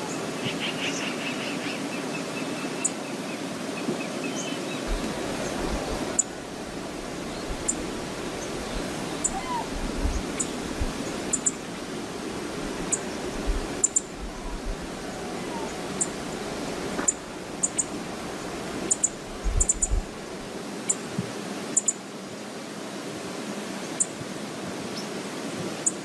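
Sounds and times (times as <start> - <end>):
waterfall rushing: 0.0 - 25.6
wind buffeting microphone: 4.8 - 20.6.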